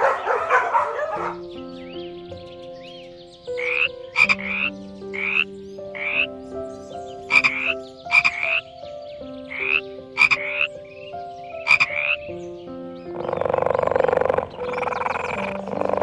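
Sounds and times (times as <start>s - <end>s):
frog croaking: 3.6s - 6.3s, 7.3s - 8.7s, 9.5s - 10.8s, 11.6s - 12.4s, 13.1s - 16.0s.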